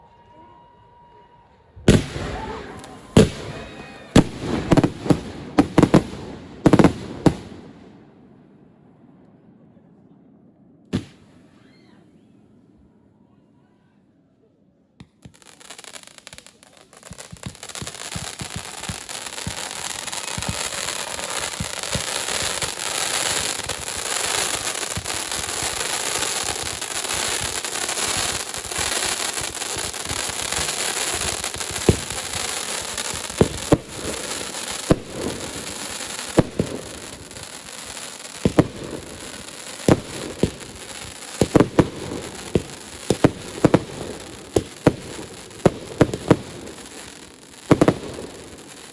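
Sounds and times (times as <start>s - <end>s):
distant fireworks crackling: 1.9s - 8.3s, 10.9s - 11.6s, 15.0s - 48.9s
firework shells bursting: 11.0s - 11.4s, 16.2s - 48.9s.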